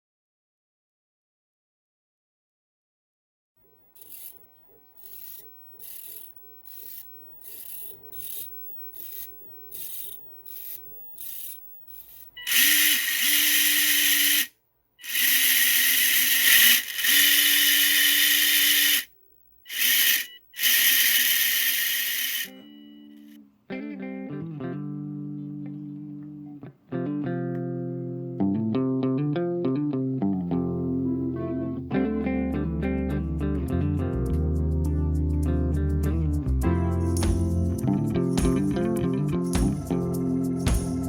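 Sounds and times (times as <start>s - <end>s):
small electric motor hissing: 4.0s - 4.4s, 5.0s - 19.1s, 19.7s - 23.3s
rubbing strokes: 5.0s - 19.1s.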